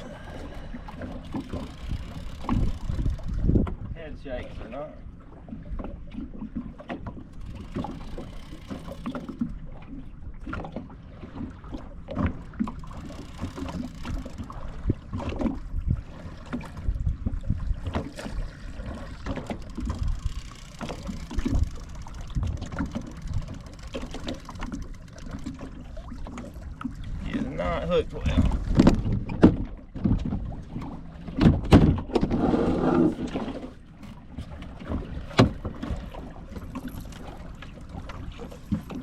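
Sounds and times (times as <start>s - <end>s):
knocks and low thumps on boat: 0.0s - 32.4s, 33.0s - 39.0s
water splashing: 4.4s - 31.7s.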